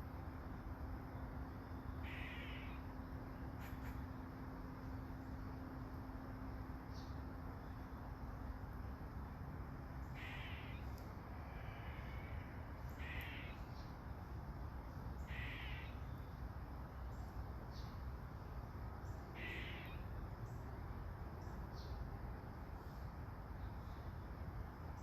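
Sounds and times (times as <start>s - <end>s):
bird giving harsh calls: 2.0s - 2.8s, 10.2s - 10.8s, 13.0s - 13.6s, 15.2s - 16.0s, 19.4s - 20.0s.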